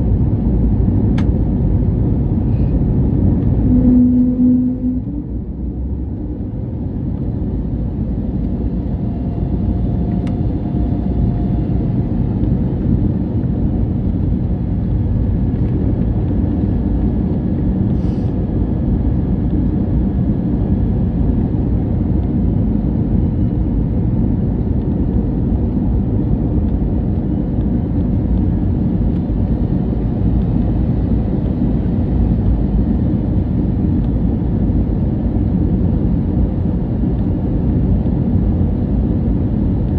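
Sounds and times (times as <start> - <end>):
airliner cabin engine roar: 0.0 - 39.9.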